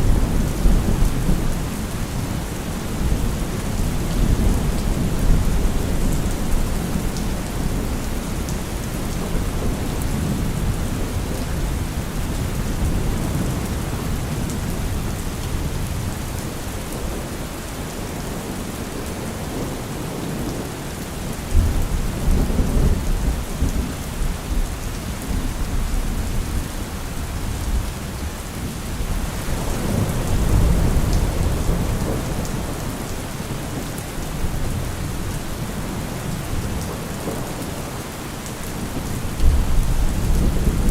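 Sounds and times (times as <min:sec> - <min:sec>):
heavy rain falling: 0:00.0 - 0:40.9
rolling thunder rumbling: 0:38.8 - 0:40.9.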